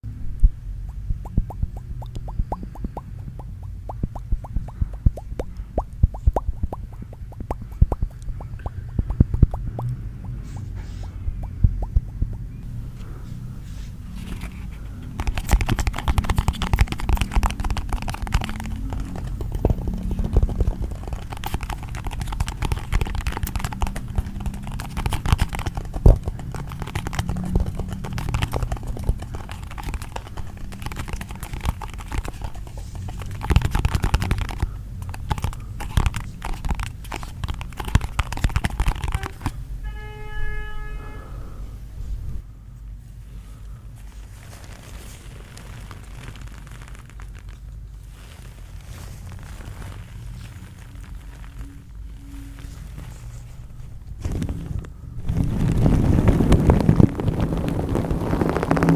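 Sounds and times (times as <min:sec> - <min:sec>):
low rumble: 0:41.3 - 0:58.9.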